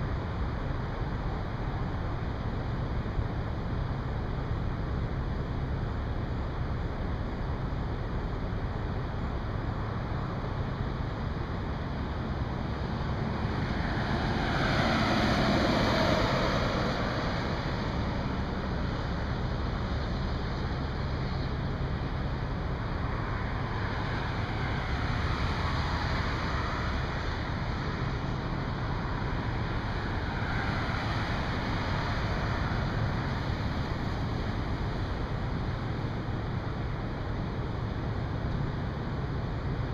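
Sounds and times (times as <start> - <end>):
highway traffic hiss: 0.0 - 39.9
vehicle passing close: 13.1 - 19.5.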